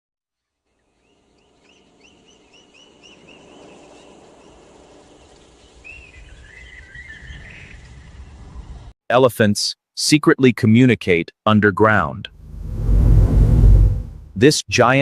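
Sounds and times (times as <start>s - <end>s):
low rumble: 12.4s - 14.4s.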